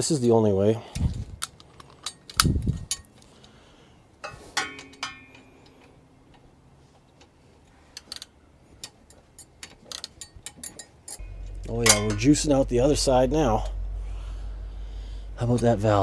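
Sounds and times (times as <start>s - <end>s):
metal tools clinking: 1.4s - 3.6s, 4.2s - 6.0s, 7.9s - 11.2s, 11.8s - 12.4s
short metallic ring: 10.1s - 12.6s.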